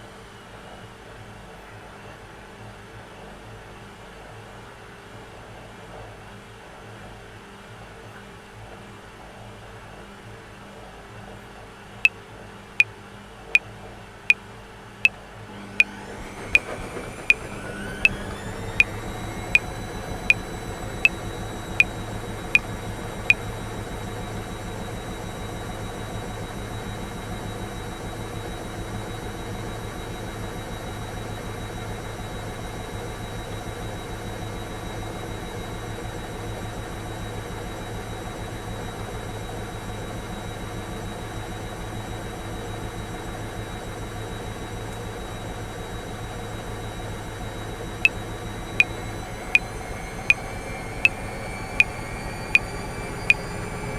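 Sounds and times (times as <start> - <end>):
washing machine humming and whining: 15.5 - 53.9.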